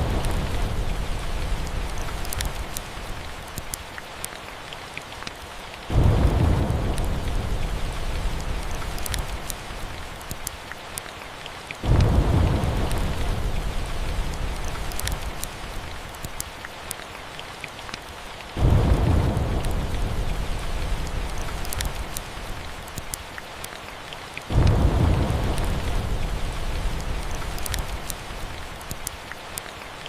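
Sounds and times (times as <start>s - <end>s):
thunder rumbling: 0.0s - 3.4s, 5.9s - 10.3s, 11.8s - 16.2s, 18.6s - 23.0s, 24.5s - 29.0s
steady rain: 0.0s - 30.0s.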